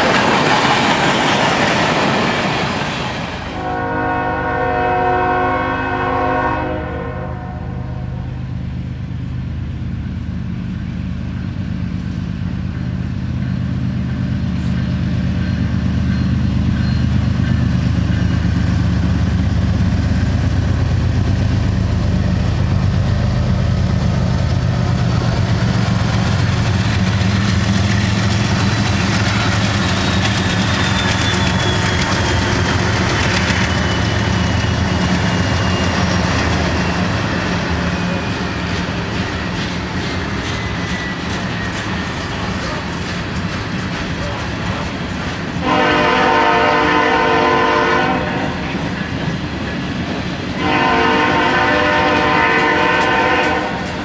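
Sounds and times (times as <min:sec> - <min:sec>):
freight train rolling past: 0:00.0 - 0:54.0
locomotive air horn: 0:03.5 - 0:08.4, 0:45.6 - 0:48.8, 0:50.6 - 0:54.0.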